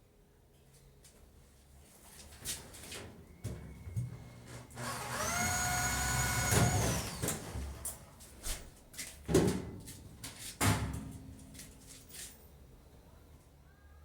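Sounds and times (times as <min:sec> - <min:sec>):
power drill whining: 0:04.7 - 0:08.0.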